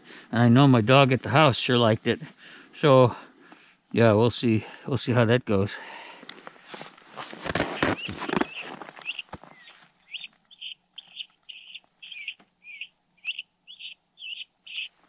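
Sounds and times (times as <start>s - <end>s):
rustling and crunching: 6.3s - 12.6s.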